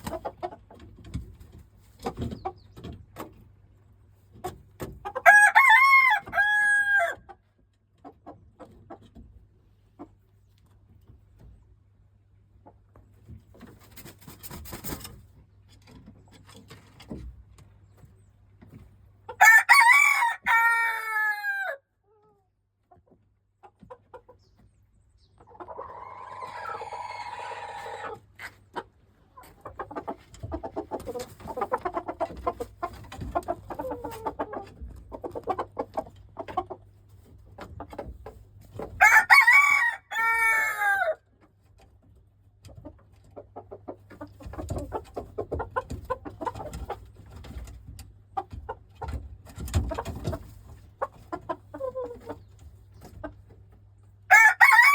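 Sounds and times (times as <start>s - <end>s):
chicken clucking: 0.0s - 54.9s
rooster crowing: 5.2s - 7.2s, 19.4s - 21.8s, 39.0s - 41.2s, 54.3s - 54.9s.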